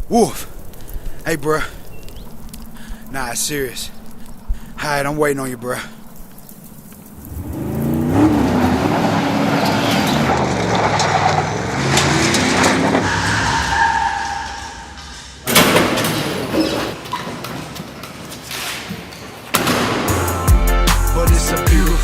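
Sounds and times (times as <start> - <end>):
car engine revving: 7.2 - 13.4
tyres squealing: 7.2 - 15.4.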